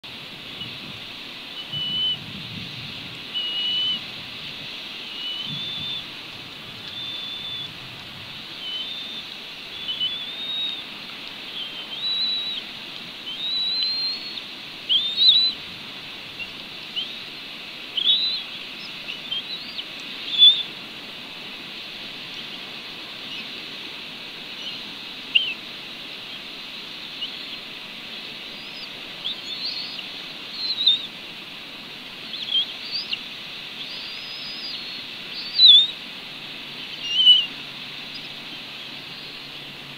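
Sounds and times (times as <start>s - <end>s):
steady hiss: 0.0s - 39.9s
bird whistled calls: 1.6s - 2.2s, 3.3s - 4.1s, 5.0s - 6.1s, 6.8s - 7.8s, 8.5s - 10.9s, 11.5s - 15.6s, 18.0s - 20.7s, 24.6s - 25.6s, 28.6s - 31.1s, 32.3s - 33.2s, 33.8s - 36.0s, 36.8s - 39.4s.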